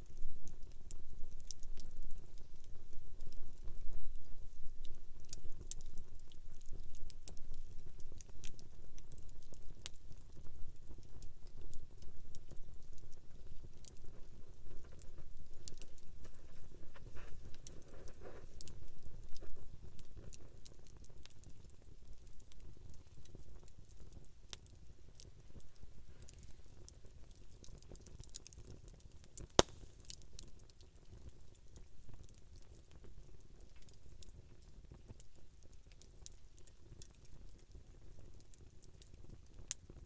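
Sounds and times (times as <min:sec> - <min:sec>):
campfire crackling and popping: 0:00.1 - 0:31.6.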